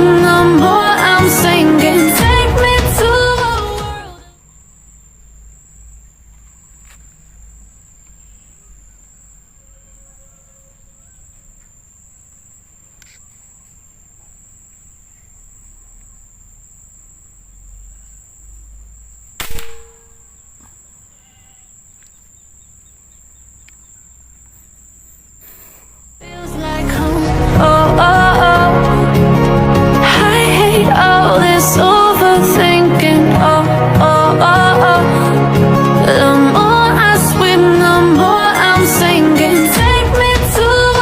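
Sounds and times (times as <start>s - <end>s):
air rifle shot: 19.4s - 20.4s.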